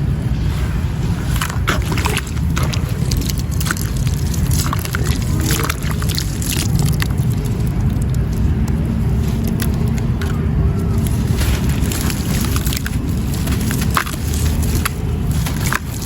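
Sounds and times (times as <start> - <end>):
wet sand churning in water: 0.0 - 16.0.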